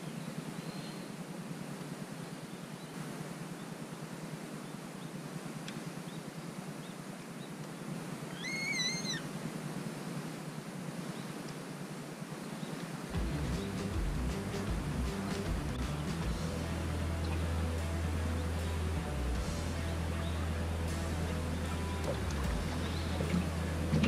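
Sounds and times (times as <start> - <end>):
outdoor background hiss: 0.0 - 24.0
bird whistle call: 8.4 - 9.2
music: 13.2 - 24.0.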